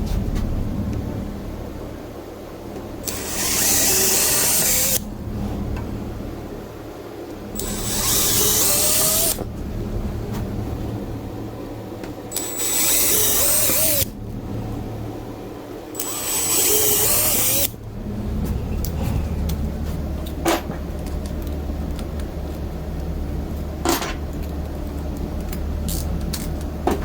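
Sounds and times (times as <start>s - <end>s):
steady low hum: 0.0s - 27.0s
power drill boring: 3.0s - 5.0s, 7.6s - 9.4s, 12.3s - 14.1s, 16.0s - 17.7s.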